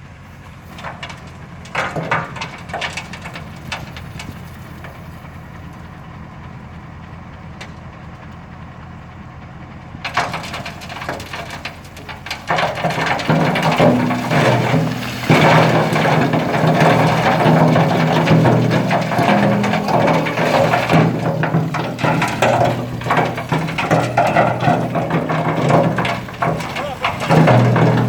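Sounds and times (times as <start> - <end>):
diesel engine drone: 0.0 - 28.0
brick cracking and crunching: 10.1 - 28.0.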